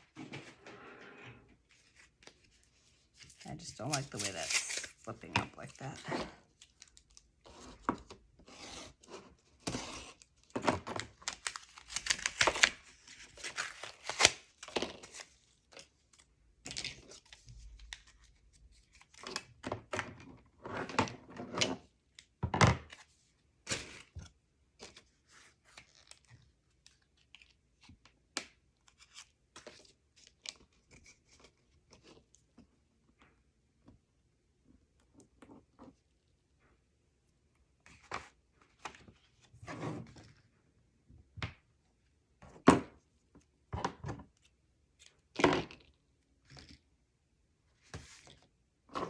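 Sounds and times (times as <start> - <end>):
paper rustling: 1.6 - 7.0.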